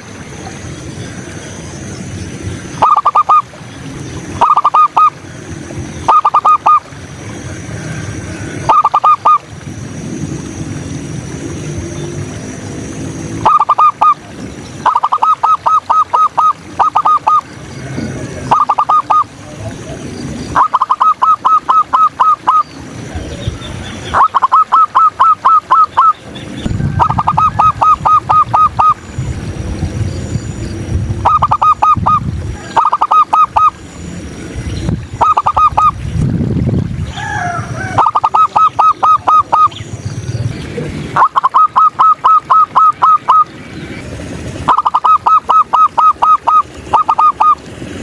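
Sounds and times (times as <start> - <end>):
dove calling in rapid bursts: 1.8 - 9.5, 13.0 - 36.2, 37.0 - 48.0.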